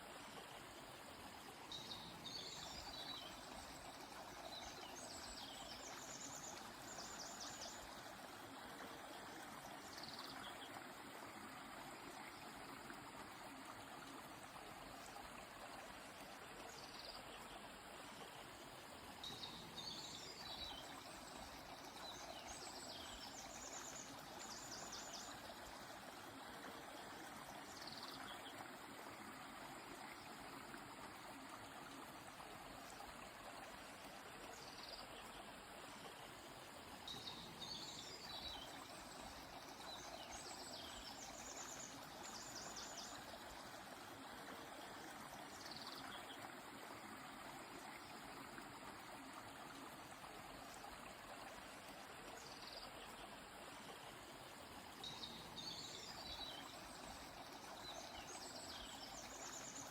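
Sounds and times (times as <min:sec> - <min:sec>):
faint flowing stream: 0:00.0 - 0:59.9
songbird chirps and trills: 0:19.1 - 0:28.7, 0:37.0 - 0:43.8, 0:54.7 - 0:59.9.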